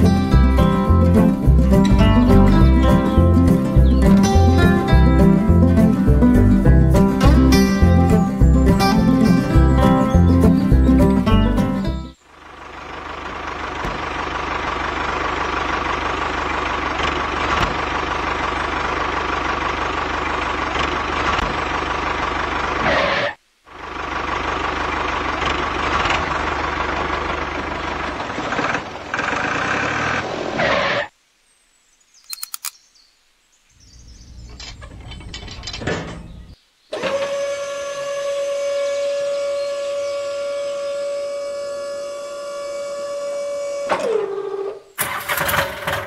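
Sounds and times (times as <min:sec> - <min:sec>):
tractor engine running: 0:00.0 - 0:30.7, 0:33.9 - 0:46.0.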